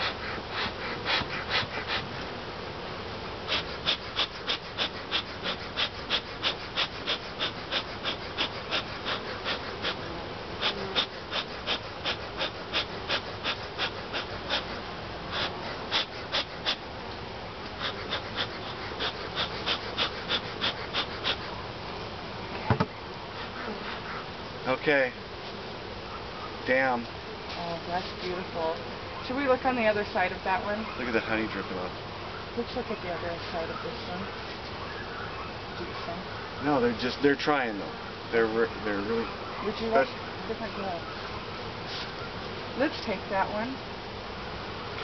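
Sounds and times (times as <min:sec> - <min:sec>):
short puffs: 0:00.0 - 0:02.1, 0:03.5 - 0:16.9, 0:17.7 - 0:21.6, 0:41.8 - 0:42.2
honeybees buzzing: 0:00.0 - 0:45.0.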